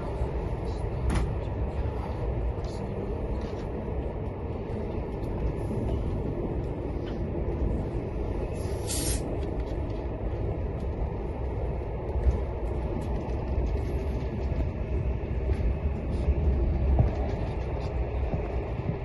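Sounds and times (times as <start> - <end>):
train wheels rumbling on rail: 0.0 - 19.0
brief hiss: 8.8 - 9.2.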